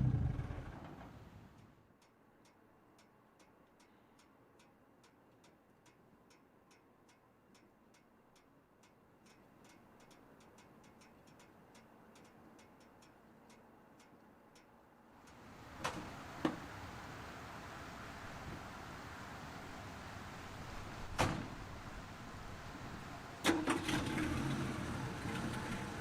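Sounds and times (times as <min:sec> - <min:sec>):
faint mechanical ticking: 0:00.0 - 0:16.0.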